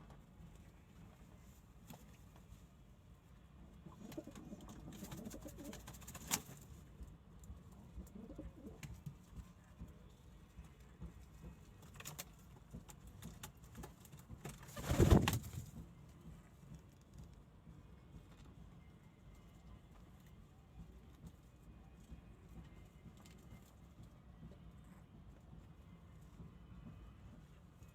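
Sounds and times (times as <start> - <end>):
pigeons cooing: 3.9 - 5.8, 8.1 - 8.8.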